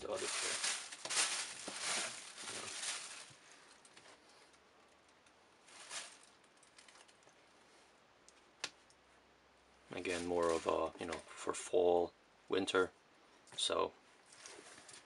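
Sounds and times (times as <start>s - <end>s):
rustling and handling noises: 0.0s - 7.6s, 9.9s - 11.5s, 13.6s - 15.0s.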